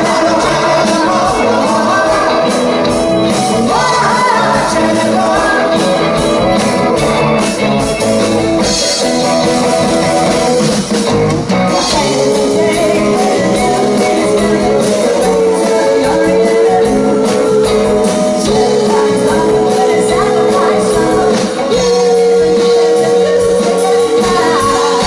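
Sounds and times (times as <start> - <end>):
lead singing: 0.0 - 7.8, 11.7 - 25.0
electric guitar: 0.0 - 25.0
live rock band playing: 0.0 - 25.0.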